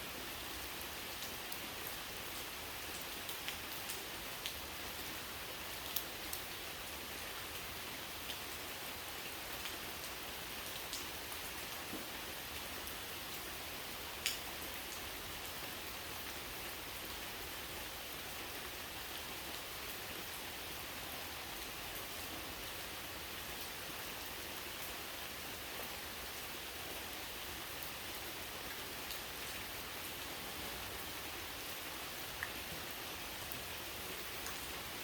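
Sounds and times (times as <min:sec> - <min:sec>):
steady rain hiss: 0:00.0 - 0:35.0
close raindrops tapping: 0:14.2 - 0:15.0.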